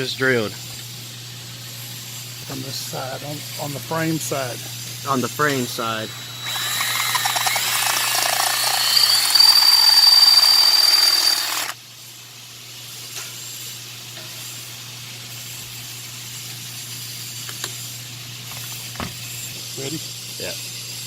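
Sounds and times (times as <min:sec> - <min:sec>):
power drill whining: 0:05.7 - 0:11.8.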